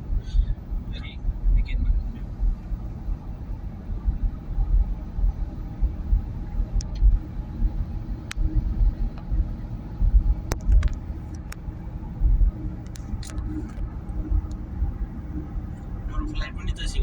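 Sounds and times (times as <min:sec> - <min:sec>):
car road and engine rumble: 0:00.0 - 0:17.0
light clicks and ticks: 0:10.4 - 0:11.7, 0:12.8 - 0:14.6.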